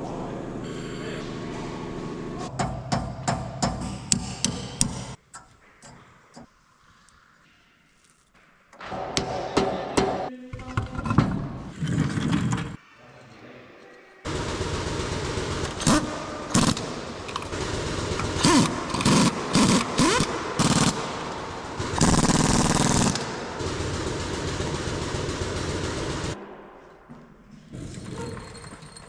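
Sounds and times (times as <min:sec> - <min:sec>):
rapid mechanical rattling: 0:14.3 - 0:26.4.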